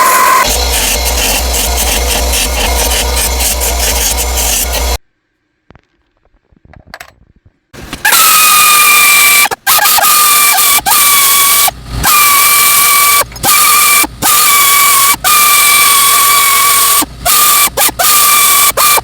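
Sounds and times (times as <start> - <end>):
tattoo machine buzzing: 0.0 - 5.0.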